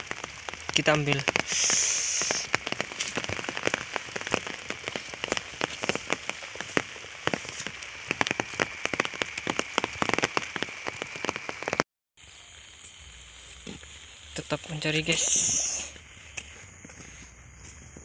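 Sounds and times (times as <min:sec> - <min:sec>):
raindrop hits close by: 0:00.0 - 0:11.8
steady rain falling: 0:00.0 - 0:18.0.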